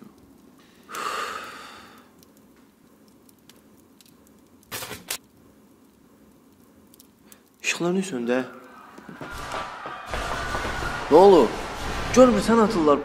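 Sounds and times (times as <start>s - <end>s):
gunshots: 9.3s - 13.0s
sudden burst: 9.3s - 13.0s.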